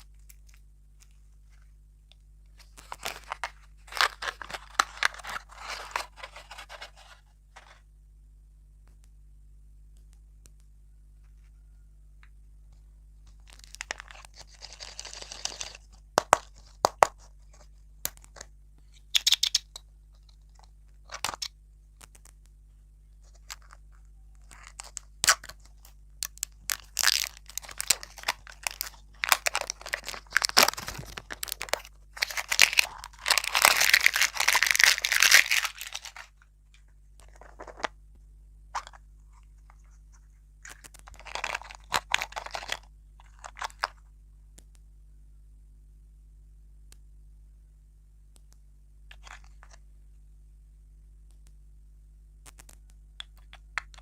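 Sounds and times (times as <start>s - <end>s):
sweet wrappers crinkling and tearing: 2.5s - 7.2s, 13.3s - 18.5s, 24.4s - 36.4s, 37.2s - 37.9s, 40.6s - 43.9s.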